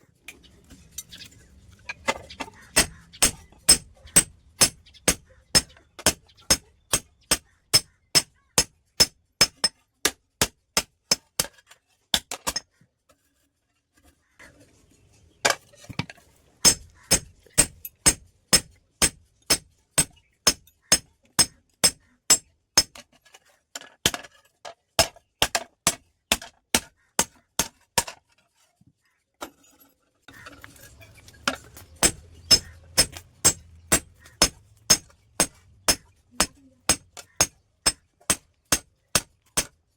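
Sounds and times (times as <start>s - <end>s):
hammer striking steel on anvil: 2.8s - 8.3s, 32.0s - 39.7s.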